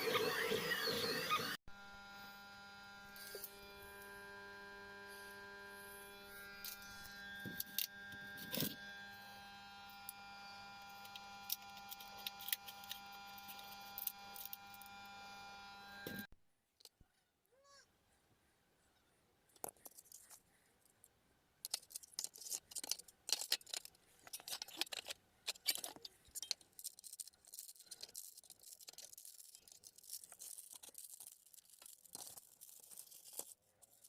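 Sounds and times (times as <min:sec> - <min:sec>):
electric motor hum: 0:00.0 - 0:16.3
stepper motors whining: 0:00.0 - 0:16.3.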